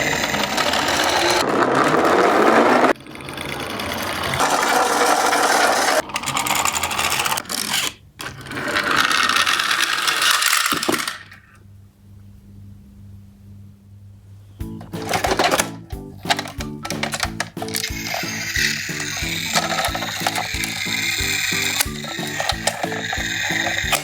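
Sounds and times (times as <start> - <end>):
mechanical whirring and rattling: 0.0 - 2.0, 16.3 - 24.0.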